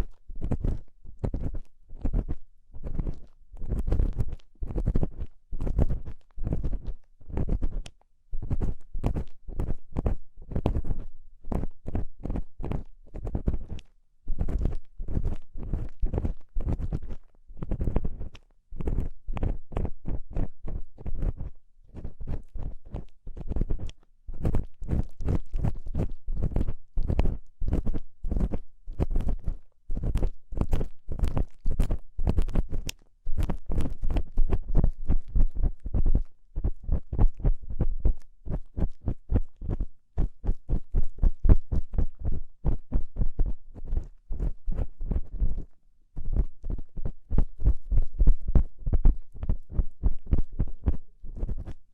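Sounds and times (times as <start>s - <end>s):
ear tool scraping inside ear: 0.4s - 37.4s.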